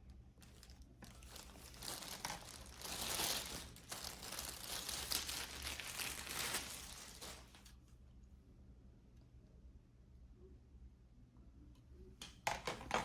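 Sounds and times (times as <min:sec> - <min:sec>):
wrapper crinkling and tearing: 0:00.4 - 0:07.7.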